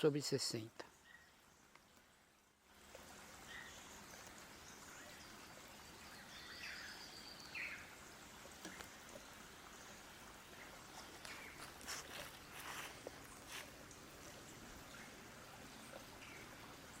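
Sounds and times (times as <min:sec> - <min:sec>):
bird calls: 0:00.9 - 0:01.8, 0:03.4 - 0:07.9.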